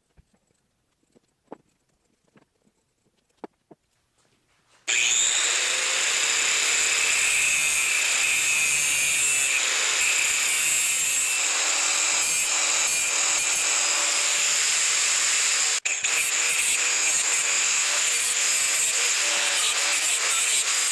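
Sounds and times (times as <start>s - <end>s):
high-pitched power tool: 4.9s - 20.9s.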